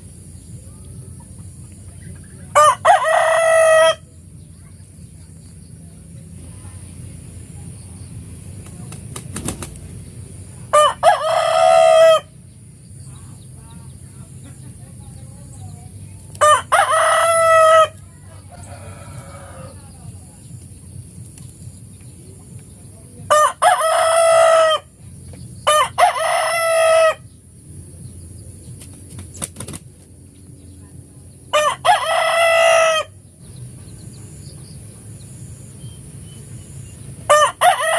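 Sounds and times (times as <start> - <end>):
rooster crowing: 2.5 - 4.1, 10.7 - 12.3, 16.4 - 20.0, 23.3 - 24.9, 25.6 - 27.3, 31.5 - 33.2, 37.3 - 37.9.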